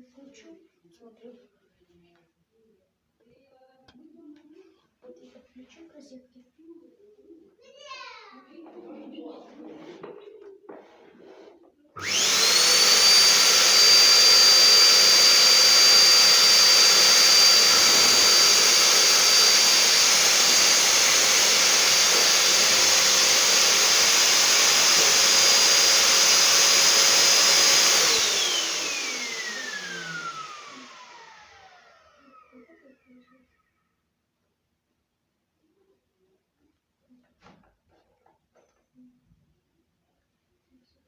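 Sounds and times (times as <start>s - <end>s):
vacuum cleaner motor whine: 12.0s - 33.1s.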